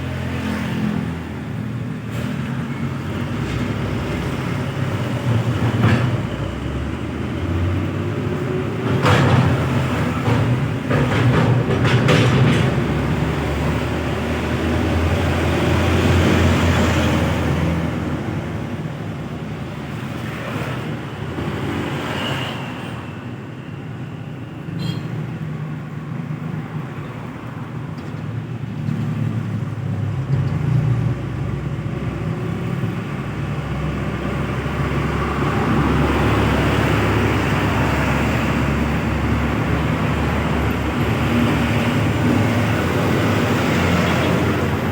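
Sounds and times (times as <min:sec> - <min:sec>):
heavy trucks passing: 0:00.0 - 0:44.9.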